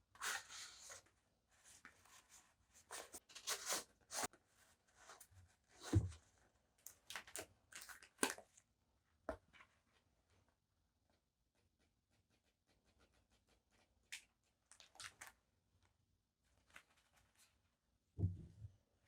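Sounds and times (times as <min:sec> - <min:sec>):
soft thud: 0:18.2 - 0:18.7.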